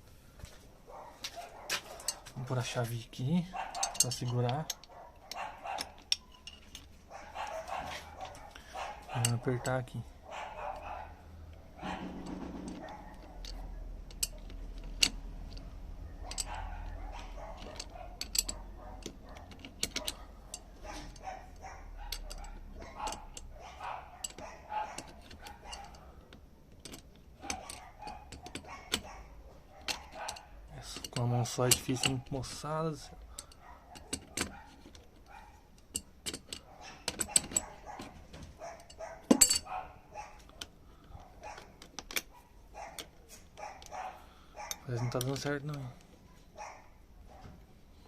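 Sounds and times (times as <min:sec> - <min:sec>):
dog barking: 0:00.9 - 0:02.4, 0:03.4 - 0:06.1, 0:07.1 - 0:13.9, 0:15.6 - 0:26.2, 0:27.4 - 0:30.6, 0:33.0 - 0:35.7, 0:36.6 - 0:45.4, 0:46.5 - 0:47.6
wrench clicking on a nut: 0:12.7 - 0:23.5, 0:29.8 - 0:38.1.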